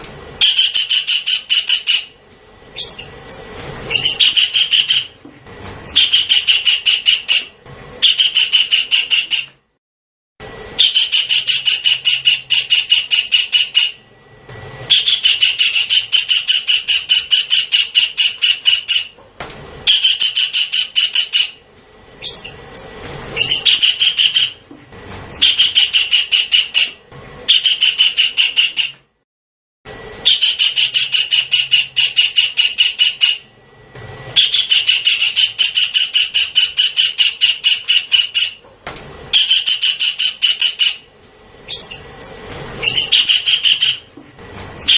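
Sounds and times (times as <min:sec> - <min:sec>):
kingfisher rattling call: 0:00.4 - 0:02.2, 0:02.8 - 0:05.2, 0:05.8 - 0:09.5, 0:10.8 - 0:14.0, 0:14.9 - 0:19.2, 0:19.9 - 0:21.6, 0:22.2 - 0:24.6, 0:25.3 - 0:28.9, 0:30.2 - 0:33.5, 0:34.4 - 0:38.6, 0:39.3 - 0:41.1, 0:41.7 - 0:44.1.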